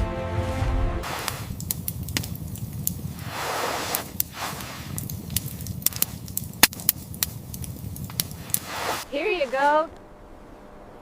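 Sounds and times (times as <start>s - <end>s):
campfire crackling and popping: 1.0s - 9.4s
low steady rumble: 1.0s - 11.0s.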